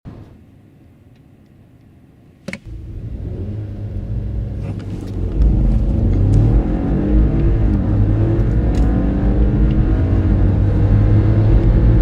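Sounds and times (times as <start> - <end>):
car engine accelerating hard: 2.7 - 12.0.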